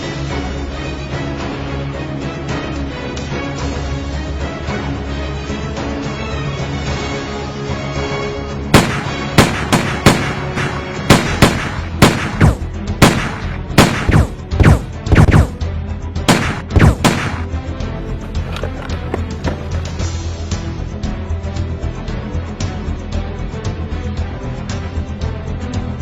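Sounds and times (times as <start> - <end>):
steady background music: 0.0 - 26.0
gunshot sound effects: 8.8 - 15.6, 16.2 - 17.5.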